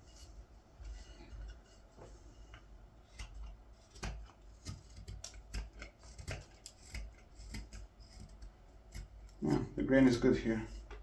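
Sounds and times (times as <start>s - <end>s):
knife cutting green wood: 3.2s - 10.9s.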